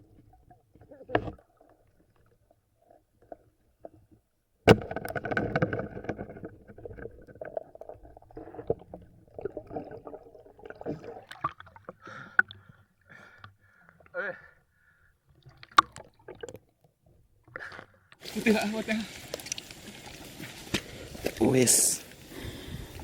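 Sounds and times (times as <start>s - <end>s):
river water splashing: 18.2s - 23.0s.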